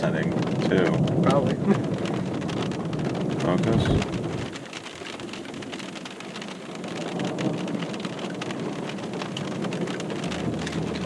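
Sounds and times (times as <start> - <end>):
rain on car roof: 0.0 - 11.0.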